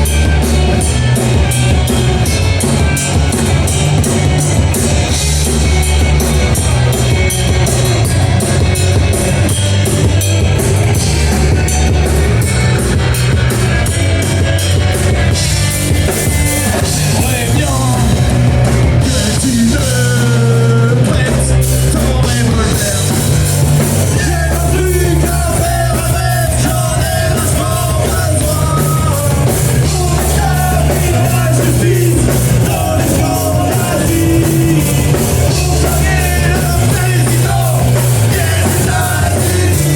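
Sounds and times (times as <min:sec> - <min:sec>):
drum kit: 0:00.0 - 0:39.9
heavy bass line: 0:00.0 - 0:39.9
rock band playing live: 0:00.0 - 0:39.9
person singing: 0:16.1 - 0:39.9.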